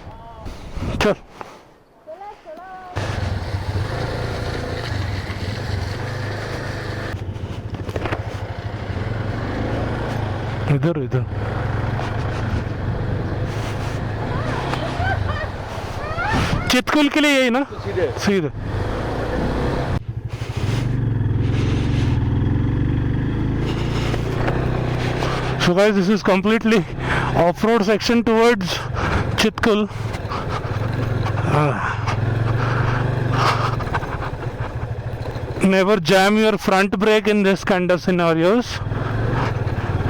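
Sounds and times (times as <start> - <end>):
motorcycle engine running: 3.0 - 16.3, 17.7 - 27.7, 28.8 - 35.8, 38.6 - 40.0.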